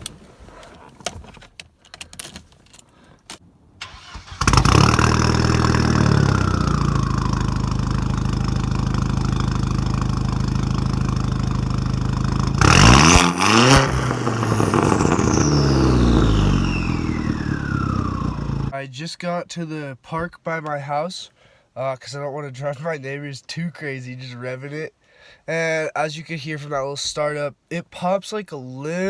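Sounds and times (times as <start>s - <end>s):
car engine revving: 3.8s - 18.7s
car engine starting and idling: 3.8s - 18.8s.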